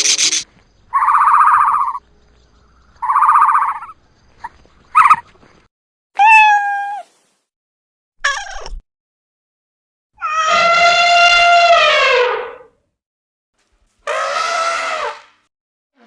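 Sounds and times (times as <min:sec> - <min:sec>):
buzzy rattling animal calls: 0:00.0 - 0:05.4.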